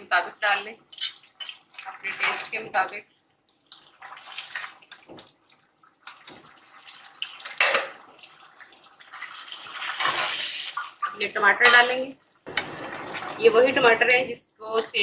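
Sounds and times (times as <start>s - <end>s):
metal ladle scraping pot: 0.9s - 2.8s, 9.6s - 14.1s
meat sizzling in oil: 3.7s - 11.5s.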